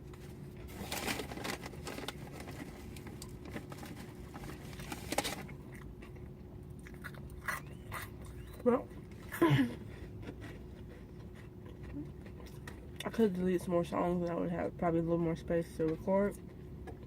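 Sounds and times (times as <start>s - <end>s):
faint steady hum: 0.0s - 17.0s
person chewing food: 5.4s - 13.0s, 16.4s - 17.0s.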